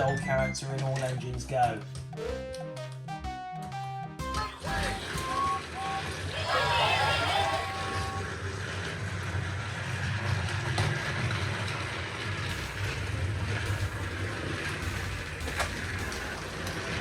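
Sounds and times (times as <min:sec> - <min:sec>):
toy train motor humming: 0:04.3 - 0:17.0.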